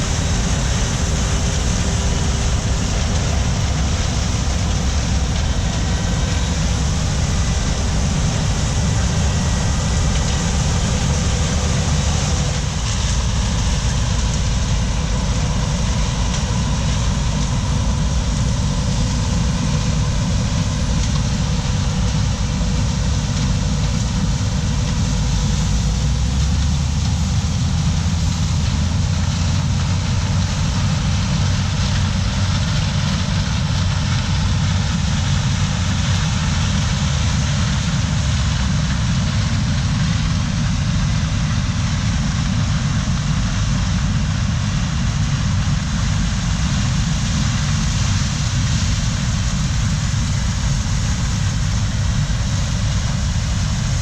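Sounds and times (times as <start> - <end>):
mechanical rush: 0.0 - 23.2
diesel machinery engine rumble: 0.0 - 54.0.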